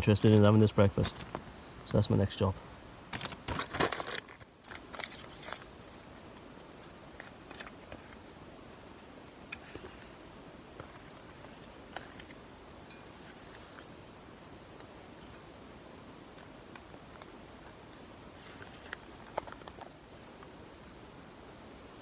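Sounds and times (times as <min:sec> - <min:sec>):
food pouch crackling and rustling: 0:00.0 - 0:05.8, 0:18.5 - 0:19.9
steady low hiss: 0:00.0 - 0:22.0.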